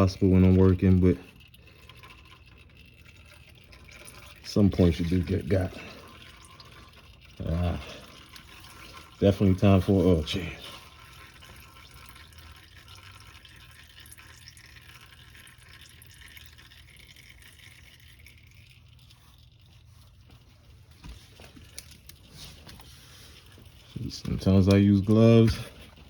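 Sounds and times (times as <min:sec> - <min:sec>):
oil trickling into pan: 0:00.0 - 0:26.0.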